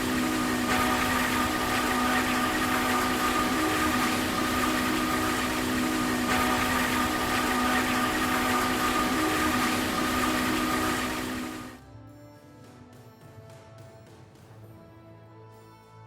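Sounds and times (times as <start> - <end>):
heavy machinery humming and whining: 0.0 - 11.8.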